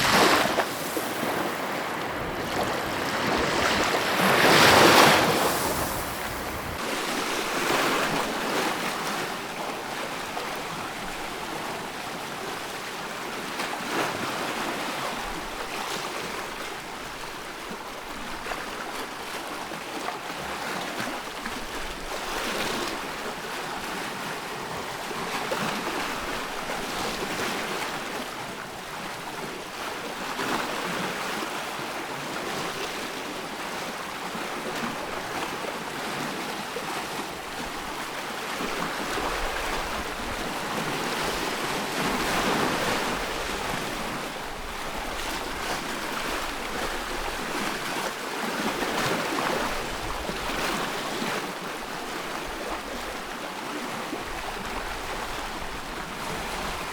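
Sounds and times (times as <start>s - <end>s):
ocean waves breaking: 0.0s - 12.6s, 34.6s - 56.9s.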